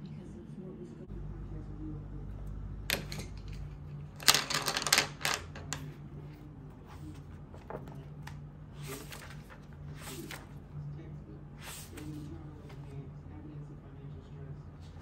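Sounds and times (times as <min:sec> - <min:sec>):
steady low hum: 0:00.0 - 0:04.8, 0:05.4 - 0:15.0
sharp clicks and rattles: 0:02.9 - 0:05.8.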